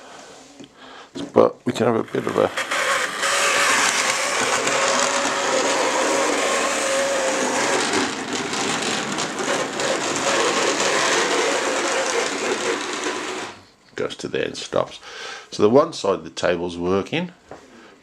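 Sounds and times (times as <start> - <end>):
model train motor whirring: 2.0 - 13.6.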